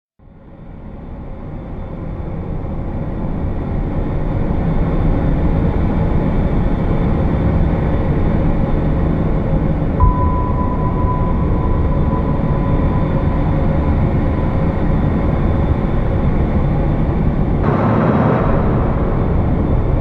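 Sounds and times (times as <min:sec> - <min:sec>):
steady high-pitched tone: 0:09.8 - 0:20.0.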